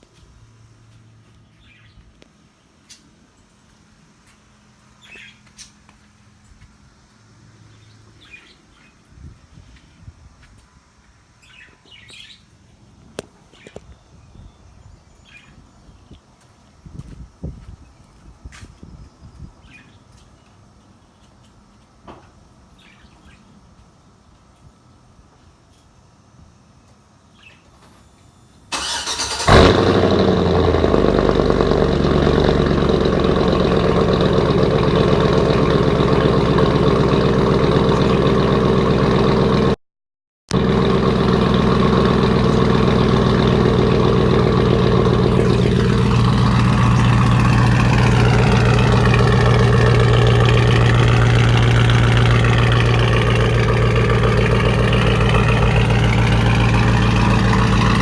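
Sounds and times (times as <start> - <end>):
car engine cranking and starting: 28.7 - 39.8, 40.5 - 58.0
loud engine fast idle: 28.7 - 39.8, 40.5 - 58.0.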